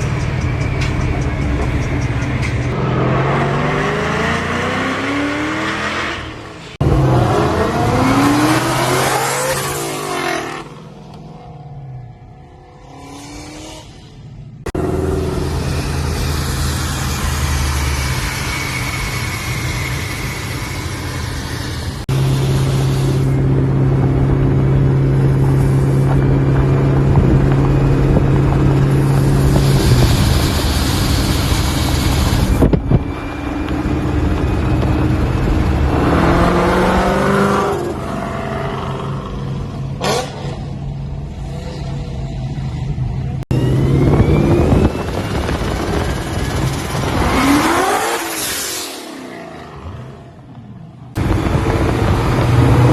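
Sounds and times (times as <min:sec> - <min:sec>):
car engine revving through exhaust: 0:02.7 - 0:33.0, 0:33.8 - 0:40.8, 0:43.5 - 0:48.9, 0:51.1 - 0:52.9.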